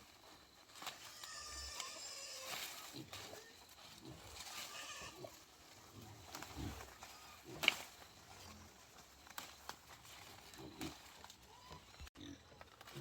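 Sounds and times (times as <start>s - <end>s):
farm animals calling: 0.8s - 13.0s
sharp high animal cry: 4.5s - 5.4s.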